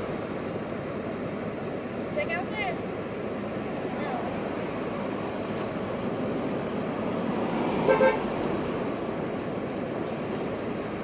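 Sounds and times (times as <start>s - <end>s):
street traffic noise: 0.0s - 11.0s
car horn toots: 7.9s - 8.2s.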